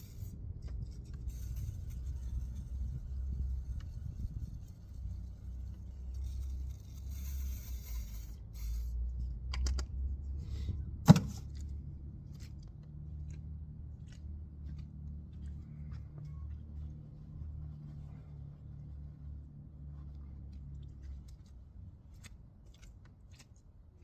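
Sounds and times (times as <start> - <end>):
low steady hum: 0.0 - 24.0
sharp knock: 11.0 - 11.4.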